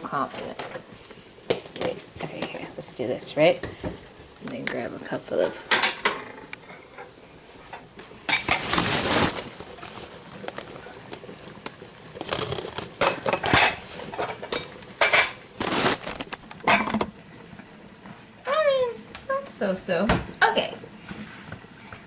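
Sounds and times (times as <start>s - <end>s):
dishes and utensils clattering: 5.5s - 7.1s, 13.0s - 15.4s.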